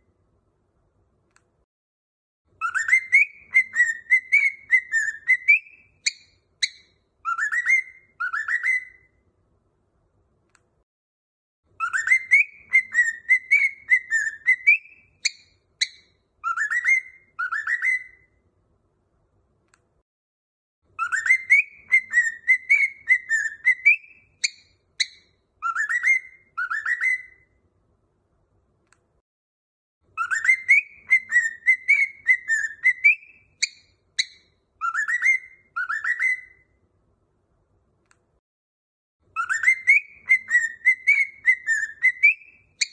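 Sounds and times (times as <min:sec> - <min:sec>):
cockatiel whistling song: 0:02.5 - 0:09.2, 0:11.7 - 0:18.4, 0:20.9 - 0:27.6, 0:30.1 - 0:36.8, 0:39.3 - 0:42.9.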